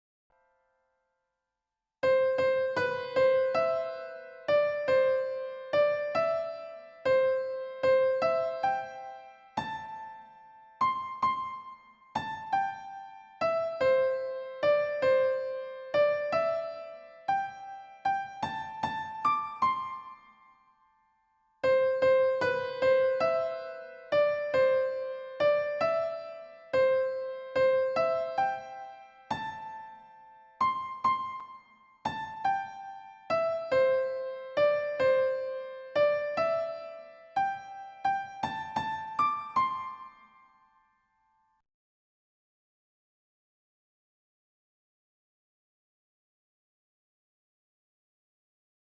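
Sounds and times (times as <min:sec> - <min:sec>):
slow keyboard melody: 0:02.1 - 0:41.0.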